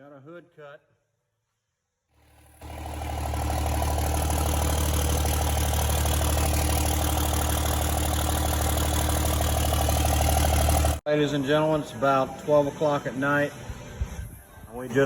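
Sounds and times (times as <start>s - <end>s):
diesel engine idling: 2.2s - 11.0s.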